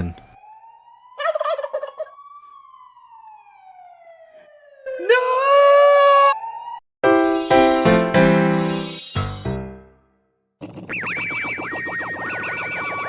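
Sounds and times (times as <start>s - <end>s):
turkey gobbling: 1.2s - 2.2s
person shouting: 5.0s - 6.4s
sliding whistle-like tone: 7.2s - 9.6s.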